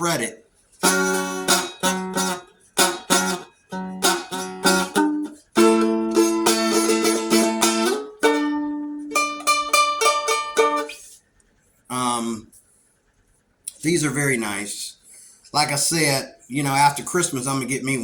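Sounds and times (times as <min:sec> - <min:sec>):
dulcimer strummed in chords: 0:00.8 - 0:11.0.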